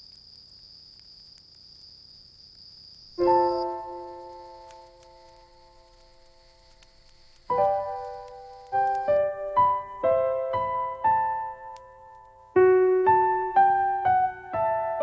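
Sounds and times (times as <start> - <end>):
soft solo piano music: 3.2 - 15.0.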